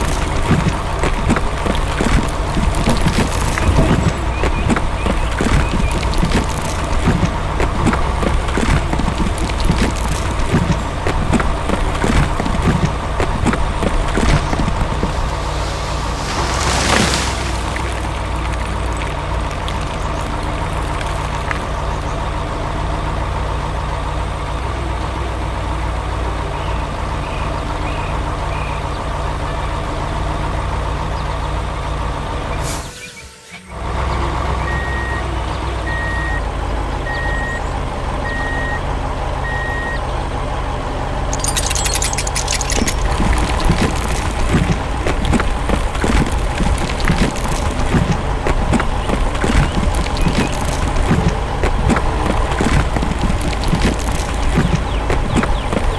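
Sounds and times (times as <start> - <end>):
heavy truck engine running: 0.0 - 55.9
hiss and rattle: 12.4 - 19.2
reversing alarm beeping: 38.2 - 38.8, 39.4 - 40.0.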